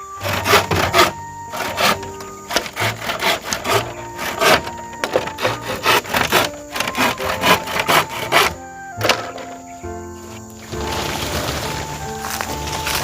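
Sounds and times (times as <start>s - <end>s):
hand saw cutting wood: 0.0s - 9.6s
background music: 0.0s - 13.0s.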